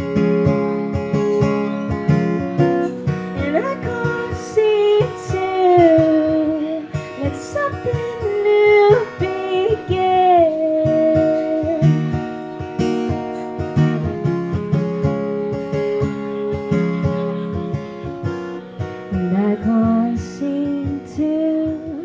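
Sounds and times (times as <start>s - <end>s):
acoustic guitar strumming: 0.0s - 22.0s
woman singing: 0.0s - 22.0s.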